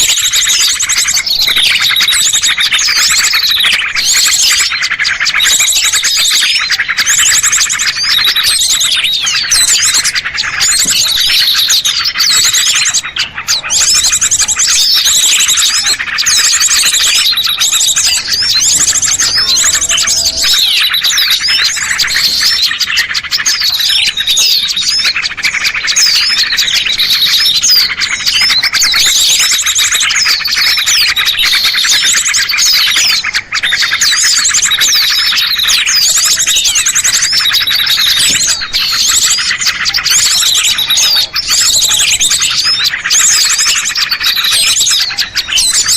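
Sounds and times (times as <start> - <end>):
songbirds chirping and trilling: 0.0 - 45.9.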